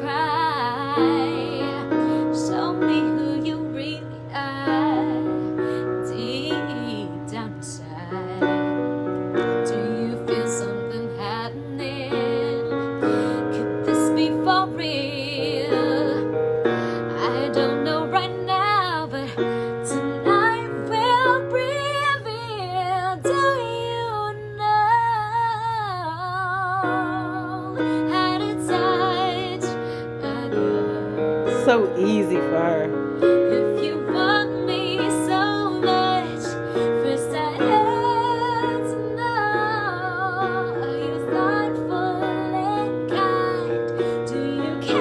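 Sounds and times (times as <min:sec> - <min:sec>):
woman singing a slow ballad: 0:00.0 - 0:29.8, 0:31.5 - 0:32.9, 0:33.9 - 0:45.0
keyboard accompaniment: 0:31.5 - 0:33.0.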